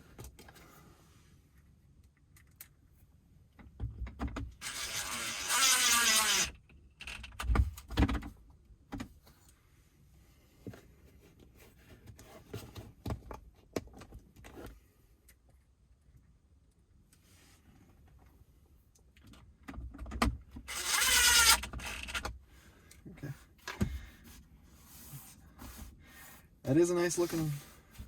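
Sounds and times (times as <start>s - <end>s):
cordless drill motor whine: 4.6s - 6.6s, 20.7s - 22.2s.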